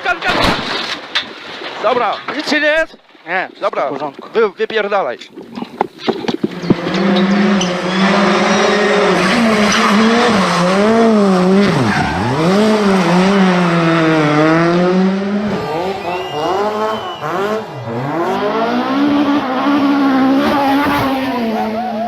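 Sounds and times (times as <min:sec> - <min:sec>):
tyre and road noise: 0:00.0 - 0:22.0
rally car engine revving: 0:06.4 - 0:22.0.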